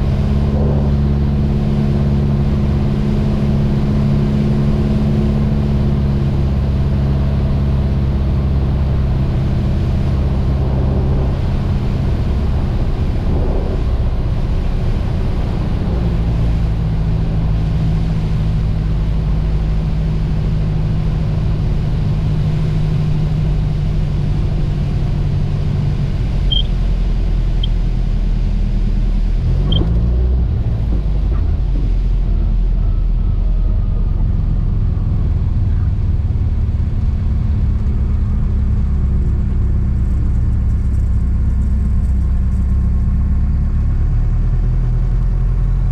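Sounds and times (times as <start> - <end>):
aircraft engine and propeller droning: 0.0 - 45.9
short high chirps: 26.5 - 26.8.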